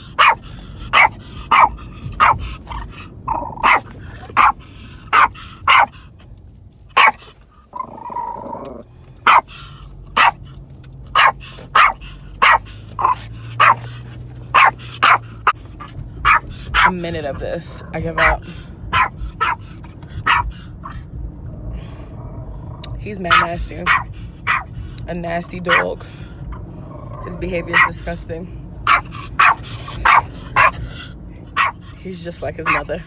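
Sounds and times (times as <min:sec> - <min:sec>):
dog barking: 0:00.2 - 0:02.4, 0:03.6 - 0:05.9, 0:07.0 - 0:07.2, 0:09.2 - 0:09.5, 0:10.2 - 0:10.4, 0:11.2 - 0:13.9, 0:14.5 - 0:15.2, 0:16.2 - 0:16.9, 0:18.2 - 0:19.6, 0:20.2 - 0:20.5, 0:23.3 - 0:24.7, 0:25.7 - 0:25.9, 0:27.7 - 0:27.9, 0:28.9 - 0:30.8, 0:31.6 - 0:31.8, 0:32.6 - 0:32.9.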